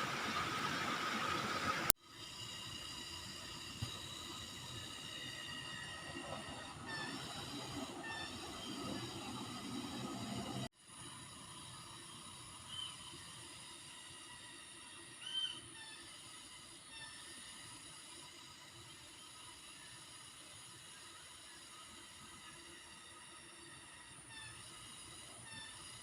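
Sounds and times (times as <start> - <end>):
insect chorus: 10.8 - 26.0.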